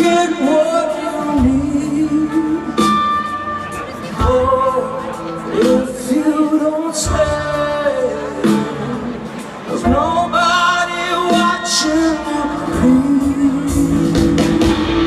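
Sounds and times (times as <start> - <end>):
rock band playing: 0.0 - 15.0
man singing long sliding notes: 4.1 - 15.0.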